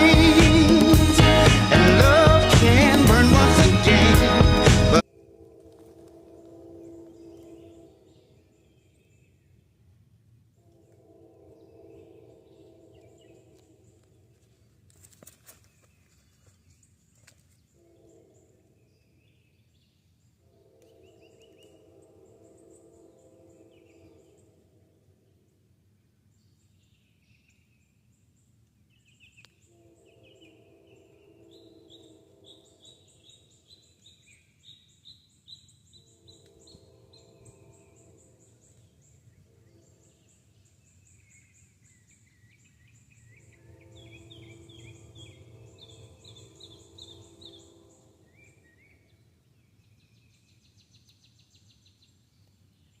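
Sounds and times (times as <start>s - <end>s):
birds chirping in trills: 29.0s - 52.2s.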